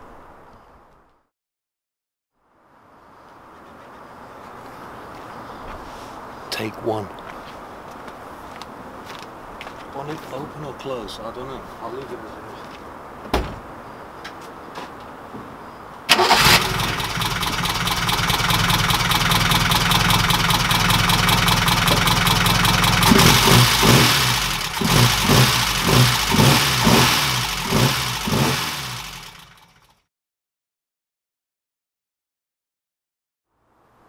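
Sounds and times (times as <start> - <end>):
engine revs blipped: 16.1 - 29.8
engine valve-train clatter: 16.4 - 30.0.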